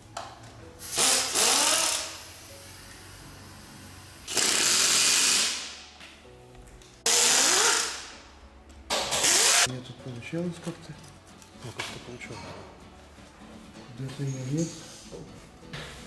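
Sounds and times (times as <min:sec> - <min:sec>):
air wrench bursts: 0:00.8 - 0:02.4, 0:04.2 - 0:05.8, 0:07.1 - 0:08.2, 0:09.0 - 0:09.7.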